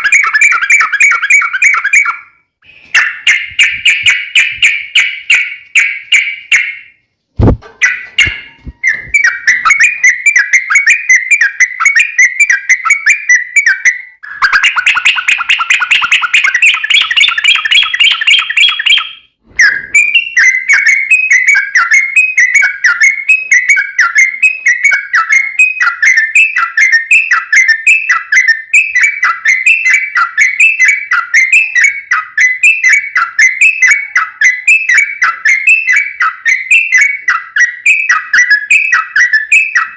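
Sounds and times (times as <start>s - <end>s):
bird singing bubbling song: 0.0s - 6.9s, 7.8s - 39.9s
short low thump: 7.4s - 7.7s.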